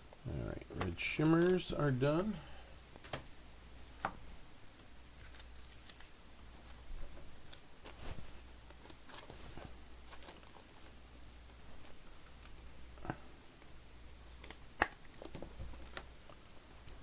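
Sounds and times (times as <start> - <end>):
low steady hum: 0.0 - 17.0
trading cards clicking and rustling: 0.6 - 1.9, 4.8 - 6.8, 14.3 - 16.4.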